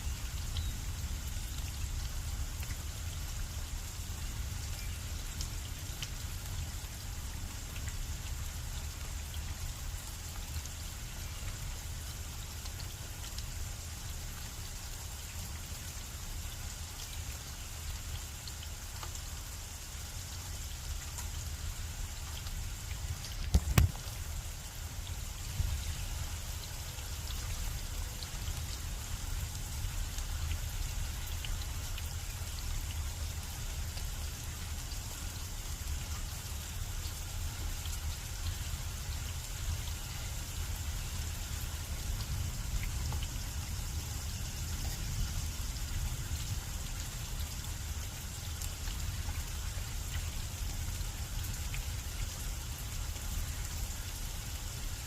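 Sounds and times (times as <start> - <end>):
steady rain falling: 0.0 - 55.0
raindrop ticks: 0.1 - 3.0, 16.6 - 19.5, 20.8 - 52.3.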